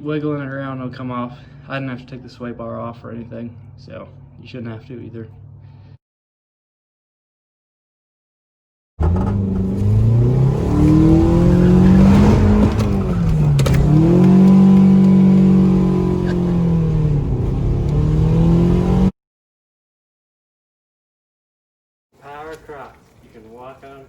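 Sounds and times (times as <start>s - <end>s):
car engine revving: 9.0s - 19.1s.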